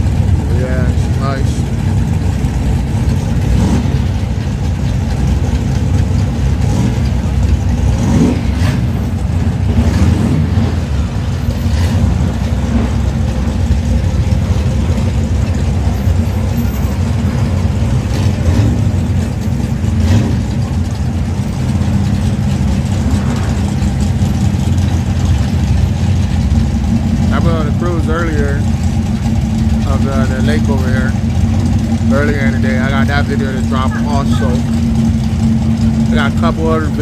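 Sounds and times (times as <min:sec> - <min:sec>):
car engines in traffic: 0:00.0 - 0:37.0.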